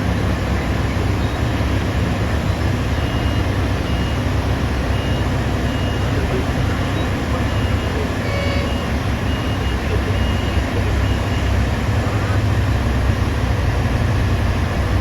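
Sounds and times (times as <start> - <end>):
diesel machinery droning: 0.0 - 15.0
reversing alarm beeping: 3.0 - 12.4.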